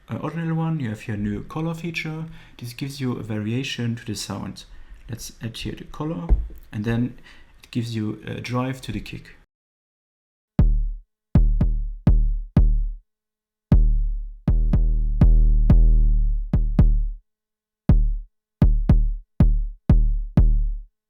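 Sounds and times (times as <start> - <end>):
booming kick drum hits: 6.3 - 6.6, 10.6 - 12.9, 13.7 - 17.1, 17.9 - 20.7.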